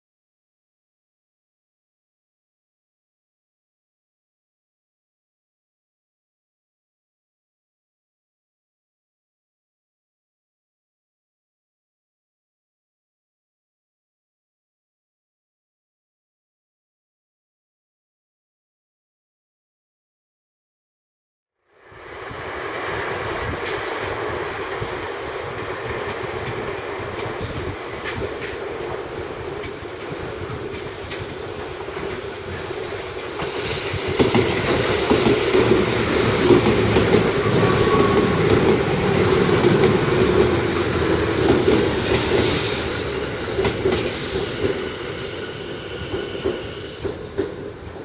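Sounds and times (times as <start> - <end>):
train wheels rumbling on rail: 22.0 - 48.0.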